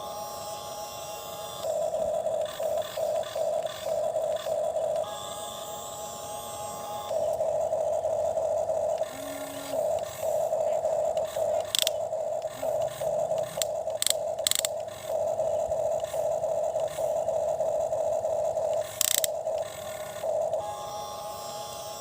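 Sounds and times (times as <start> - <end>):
toy gear motor whining: 0.0 - 22.0
sharp clicks: 11.1 - 15.2, 18.7 - 20.0.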